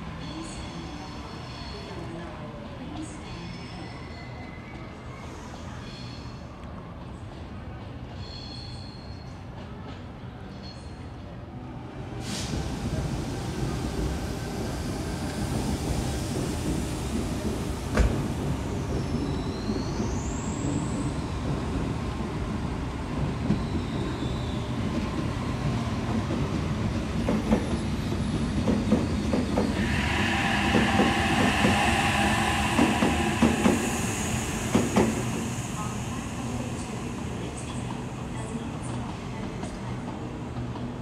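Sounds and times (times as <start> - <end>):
train wheel squeals: 0.2 - 2.1, 3.0 - 6.6, 8.1 - 9.7, 10.4 - 11.3, 17.8 - 21.7, 23.4 - 25.9, 26.9 - 39.8
train rail rumble: 12.1 - 41.0
train motor whine: 29.5 - 38.0.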